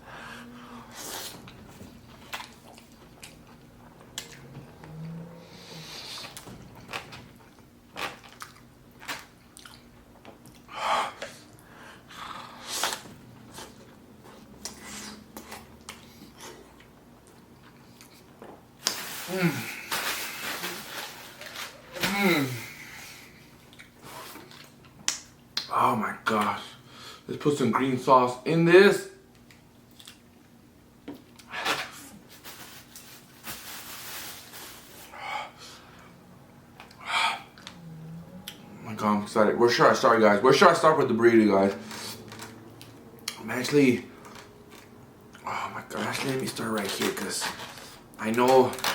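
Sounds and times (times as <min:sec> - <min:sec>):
person chewing: 0:00.9 - 0:19.0, 0:22.6 - 0:25.7, 0:29.4 - 0:30.5
lip smacks: 0:23.6 - 0:25.7.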